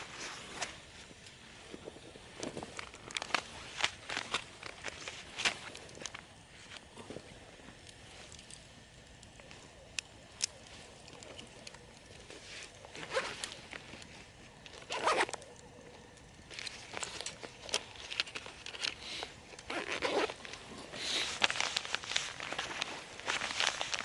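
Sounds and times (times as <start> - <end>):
zipper being pulled: 14.9 - 15.3, 19.7 - 20.4.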